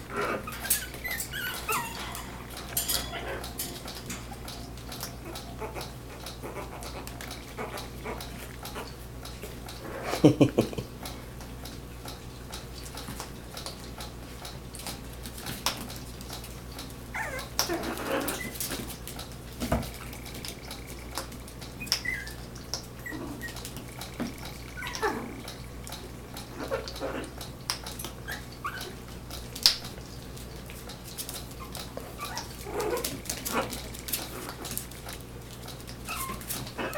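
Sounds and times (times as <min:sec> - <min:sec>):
puppies yipping and whimpering: 0:00.0 - 0:10.1, 0:16.3 - 0:36.9
puppy yapping: 0:00.1 - 0:09.0, 0:17.1 - 0:18.8, 0:20.0 - 0:27.4, 0:28.1 - 0:29.1, 0:31.4 - 0:35.2, 0:35.9 - 0:36.9.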